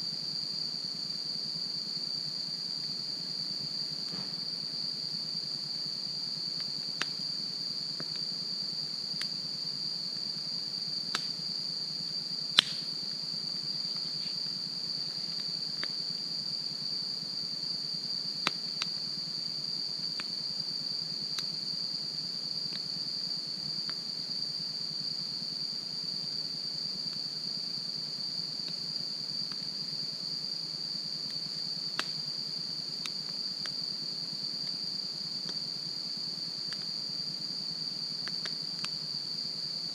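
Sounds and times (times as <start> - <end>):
crickets chirping: 0.0 - 39.9
wood fire crackling: 12.6 - 12.9.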